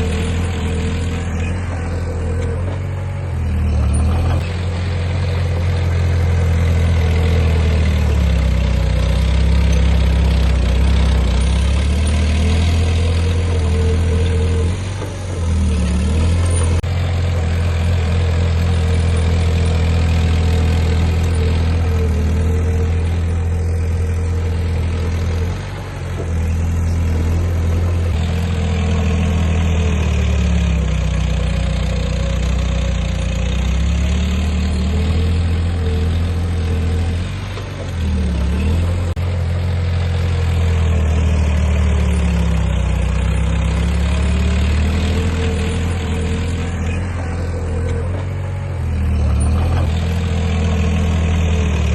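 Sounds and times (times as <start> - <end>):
heavy diesel engine humming: 0.0 - 51.9.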